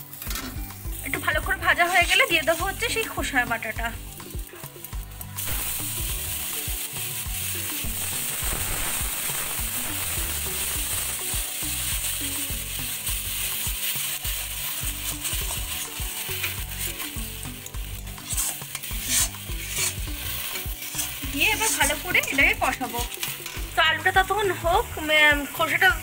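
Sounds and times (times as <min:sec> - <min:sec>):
paste sizzling in hot oil: 0:00.0 - 0:26.0
metal spatula scraping and stirring: 0:09.3 - 0:23.8.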